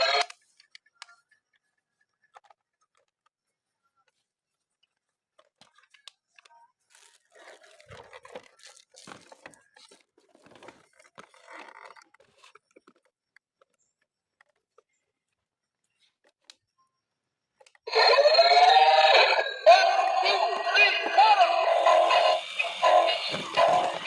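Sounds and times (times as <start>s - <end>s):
packaging tearing and crinkling: 6.9s - 9.5s.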